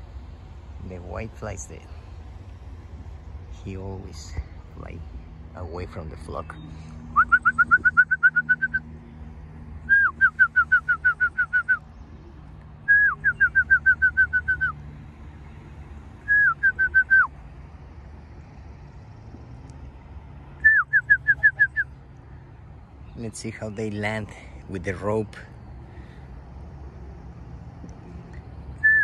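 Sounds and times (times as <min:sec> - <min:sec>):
songbird singing whistled notes: 0:06.4 - 0:08.9, 0:09.8 - 0:14.8, 0:16.2 - 0:17.4, 0:20.6 - 0:22.0, 0:28.3 - 0:29.0.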